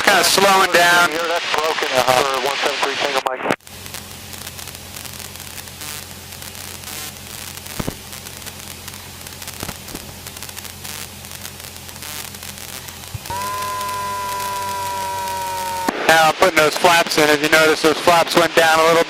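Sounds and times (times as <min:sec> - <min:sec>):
static hiss: 0:00.0 - 0:19.0
aircraft engine drone: 0:03.7 - 0:16.1.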